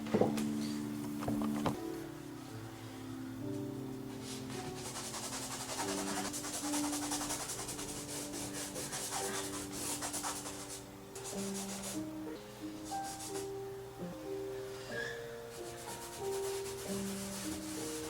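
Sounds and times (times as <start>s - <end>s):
soft background music: 0.0s - 18.0s
rhythmic dry scrubbing: 4.2s - 12.1s, 15.5s - 18.0s.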